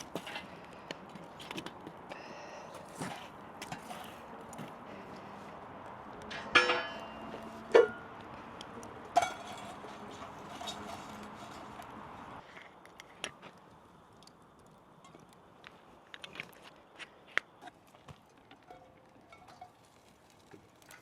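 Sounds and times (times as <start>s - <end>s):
kitchenware clinking together: 6.3s - 8.0s.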